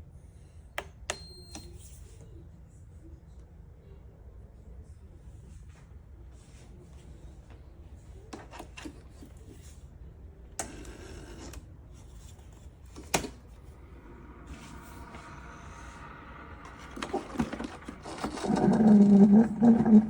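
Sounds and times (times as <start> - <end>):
objects rustling and rubbing: 12.0 - 20.0.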